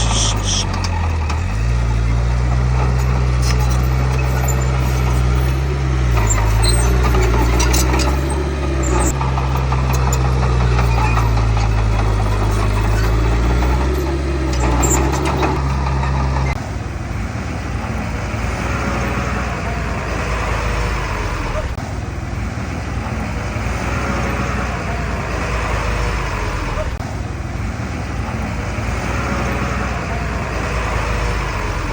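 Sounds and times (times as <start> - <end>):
metallic clanking: 0.0 - 16.6
heavy diesel engine running: 0.0 - 31.9.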